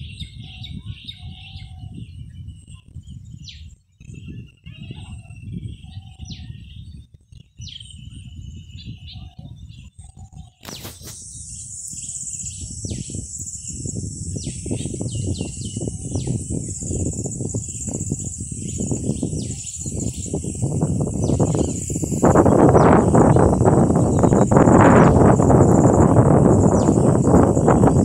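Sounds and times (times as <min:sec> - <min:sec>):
birds calling: 0:00.0 - 0:02.7, 0:03.5 - 0:06.8, 0:07.7 - 0:28.0
wind on the microphone: 0:00.0 - 0:28.0
high insect drone: 0:10.7 - 0:28.0.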